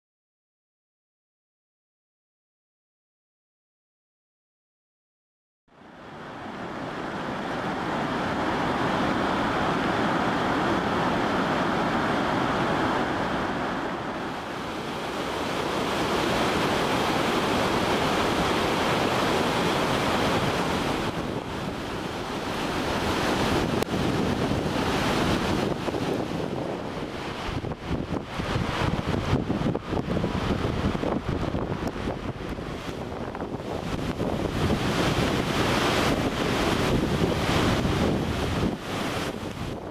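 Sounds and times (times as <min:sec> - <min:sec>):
floodwater rushing: 0:05.8 - 0:39.9
wind buffeting microphone: 0:06.8 - 0:39.9.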